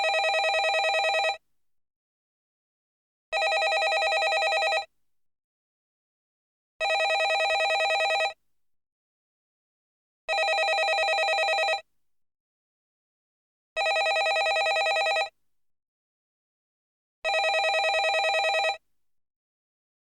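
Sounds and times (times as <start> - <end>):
telephone ringing with trill: 0.0 - 1.4, 3.4 - 4.9, 6.8 - 8.4, 10.3 - 11.8, 13.8 - 15.3, 17.3 - 18.8.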